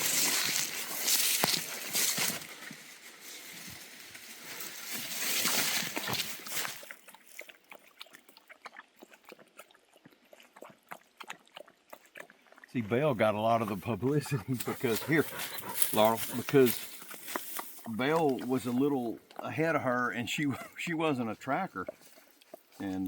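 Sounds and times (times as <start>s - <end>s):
brush and dry leaves rustling: 0.0s - 7.5s, 14.0s - 19.1s
small ticks and crackles: 0.0s - 12.3s, 14.6s - 19.5s, 21.8s - 23.0s.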